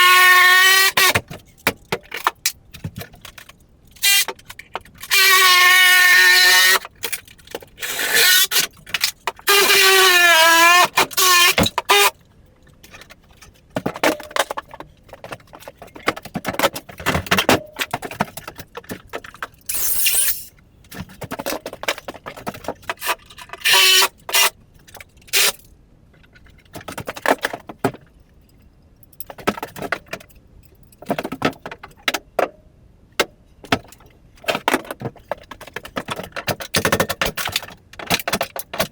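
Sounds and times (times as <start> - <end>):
nails squealing out of wood: 0.0 - 1.2, 4.0 - 4.4, 5.0 - 6.9, 7.8 - 12.2, 19.7 - 20.5, 23.6 - 24.5.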